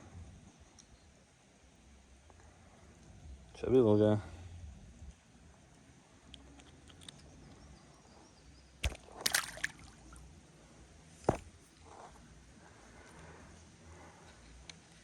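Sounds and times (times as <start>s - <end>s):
short sharp splashes: 8.8s - 10.2s
water sloshing in creek: 8.8s - 10.3s.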